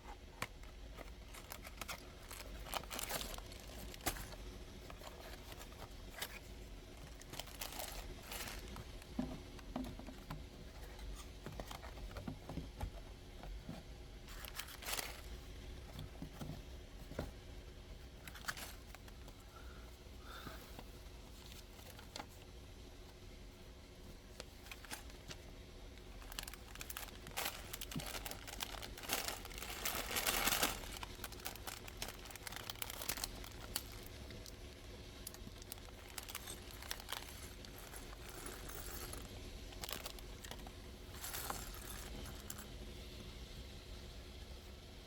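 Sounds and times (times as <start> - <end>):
plastic packaging crinkling and tearing: 0.3 - 10.2, 14.3 - 16.0, 18.2 - 19.3, 24.4 - 25.4, 26.0 - 42.8.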